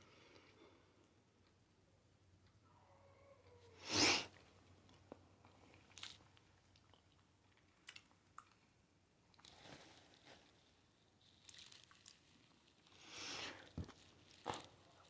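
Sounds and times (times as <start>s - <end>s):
close-up chewing: 4.4s - 9.7s, 13.6s - 15.0s.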